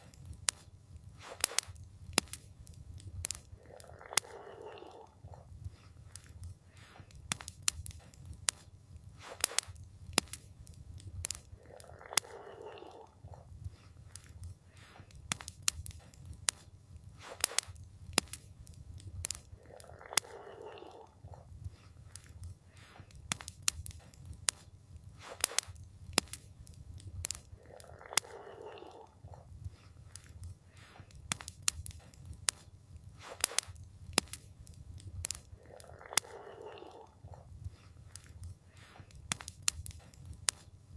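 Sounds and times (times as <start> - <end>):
campfire crackling and popping: 0.0 - 40.9
low rumble of fire: 0.0 - 40.9.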